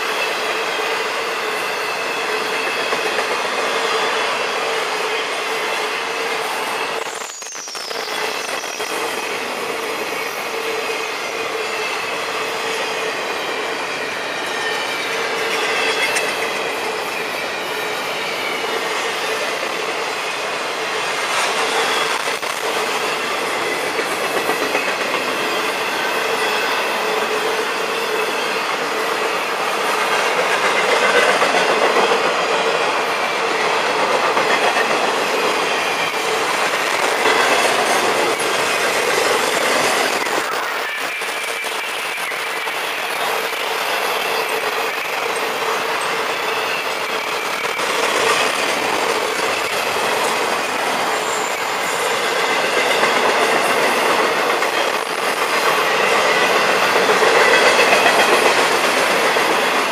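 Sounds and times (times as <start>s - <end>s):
wheels squealing: 34.4s - 59.9s.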